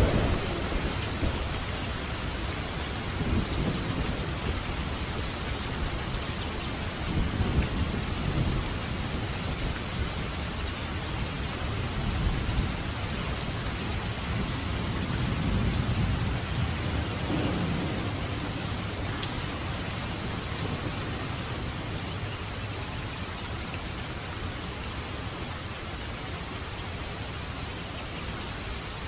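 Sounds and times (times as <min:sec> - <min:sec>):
thunder rumbling: 0:00.0 - 0:10.5, 0:11.2 - 0:23.1
heavy rain on a roof: 0:00.0 - 0:29.0.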